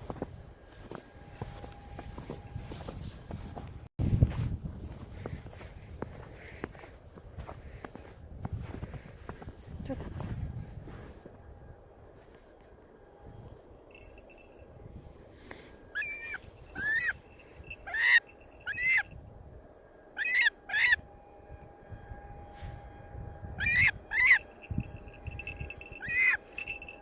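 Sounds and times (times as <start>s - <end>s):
bird calling: 15.9s - 19.1s, 20.2s - 21.0s, 23.6s - 24.5s, 26.0s - 26.5s.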